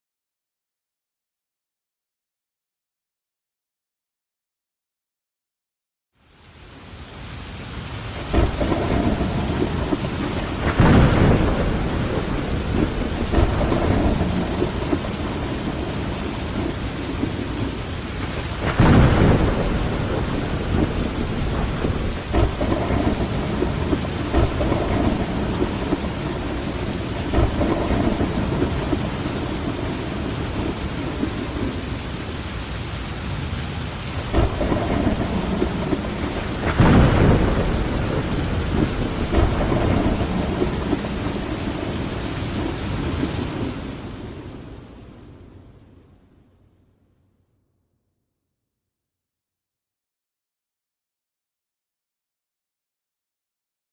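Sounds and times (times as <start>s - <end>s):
rain on window glass: 6.2s - 46.2s
thunder rolling: 8.1s - 45.6s.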